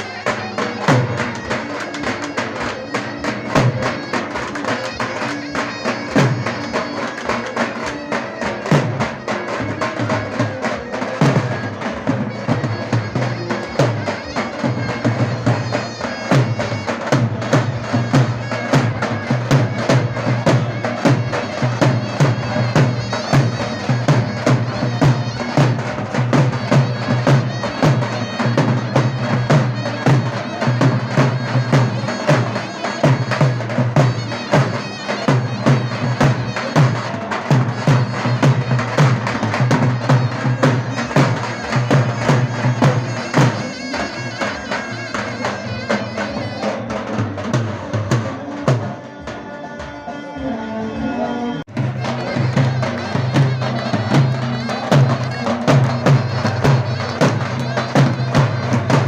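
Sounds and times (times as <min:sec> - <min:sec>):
shrill reedy pipe melody: 0:00.0 - 0:49.3, 0:50.3 - 0:59.0
rapid drum strokes: 0:51.7 - 0:59.0.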